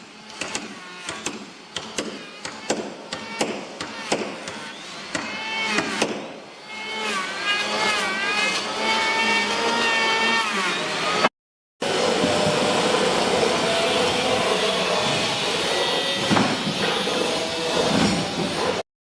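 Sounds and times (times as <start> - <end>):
hammer blows on wood: 0.4 - 6.4.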